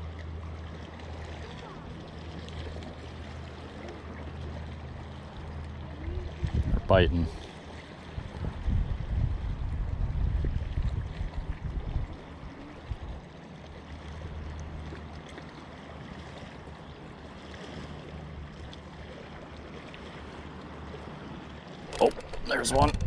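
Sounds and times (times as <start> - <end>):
wind buffeting microphone: 6.3 - 7.3, 8.1 - 13.2, 21.9 - 23.0.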